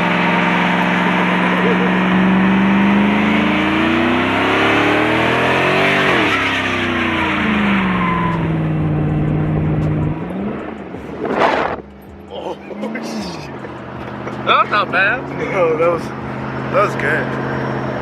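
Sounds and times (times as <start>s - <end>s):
engine revving hard: 0.0s - 18.0s
loud rush: 10.9s - 13.6s.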